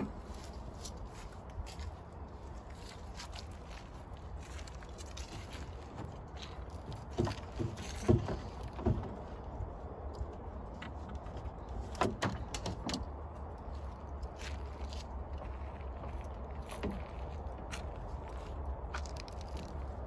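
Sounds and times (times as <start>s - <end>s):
gear knocks and clunks: 5.0s - 13.5s, 15.6s - 18.0s.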